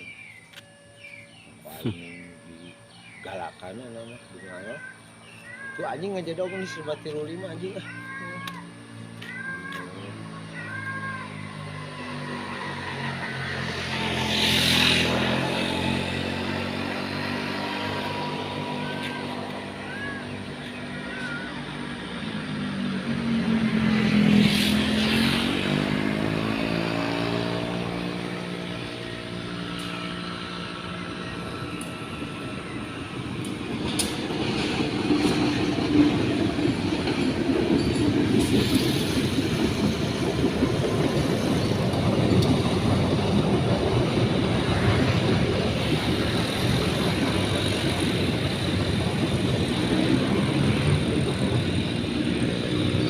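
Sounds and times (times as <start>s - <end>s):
locomotive engine drone: 0.0s - 53.0s
train cars clattering over rails: 33.2s - 52.1s.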